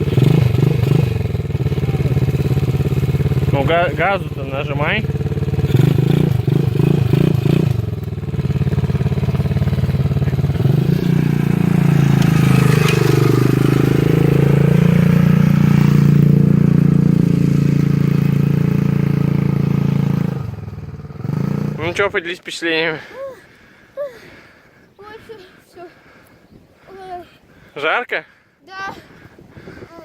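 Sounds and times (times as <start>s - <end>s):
motorbike engine revving: 0.0s - 22.2s.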